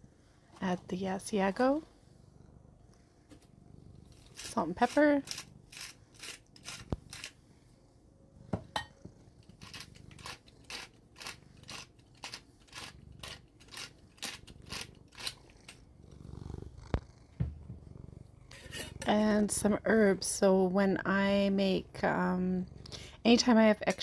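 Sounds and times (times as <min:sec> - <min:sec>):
pepper grinder grinding: 0:04.1 - 0:07.4, 0:09.4 - 0:15.8.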